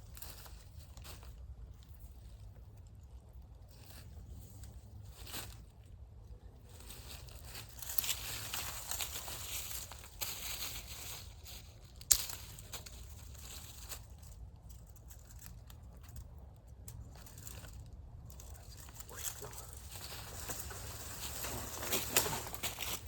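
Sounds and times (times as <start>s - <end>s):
twigs and leaves crackling: 0.0s - 23.0s
branch snapping: 11.9s - 13.0s.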